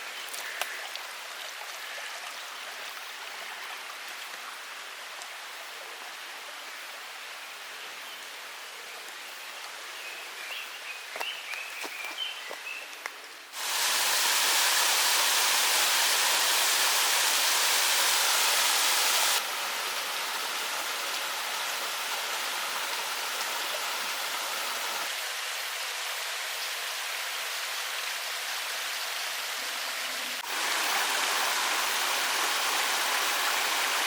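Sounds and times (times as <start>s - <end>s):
stream water rushing: 13.5s - 34.0s.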